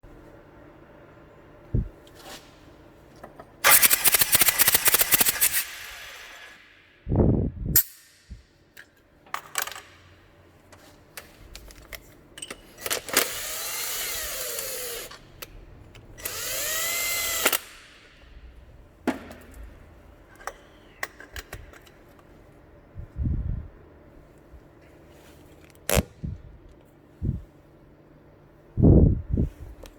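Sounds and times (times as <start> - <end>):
power tool rapid rattle: 3.6 - 6.8, 12.8 - 15.1, 16.2 - 18.0
workshop clatter: 7.8 - 13.6, 14.4 - 22.7.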